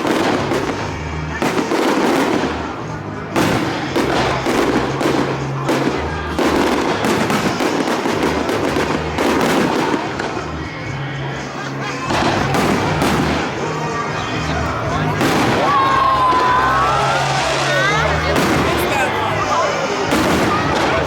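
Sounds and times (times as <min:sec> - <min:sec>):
fireworks bursting and crackling: 0:00.0 - 0:21.0
loud firework reports: 0:00.0 - 0:21.0.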